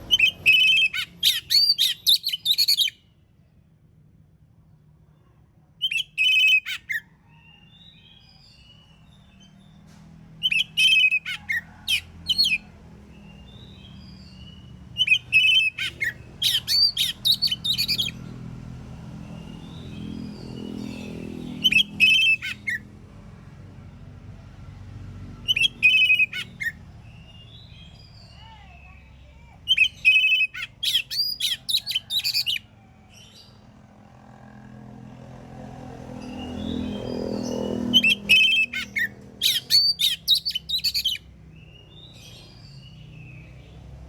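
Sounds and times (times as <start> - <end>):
bird singing whistles: 0.1 - 3.0, 5.8 - 6.8, 10.4 - 12.6, 13.7 - 18.2, 21.5 - 22.8, 25.4 - 28.3, 29.7 - 32.6, 37.8 - 42.2.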